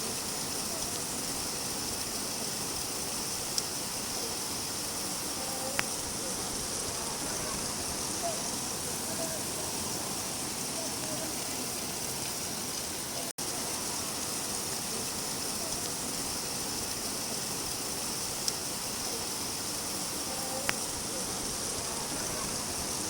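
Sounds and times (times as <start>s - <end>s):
steady rain falling: 0.0s - 23.0s
faint ticks: 5.6s - 6.0s, 20.4s - 20.9s.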